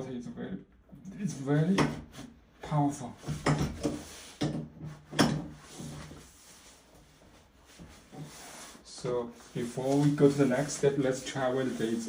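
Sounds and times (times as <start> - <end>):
knocks and rattles on valve: 3.3 - 5.6.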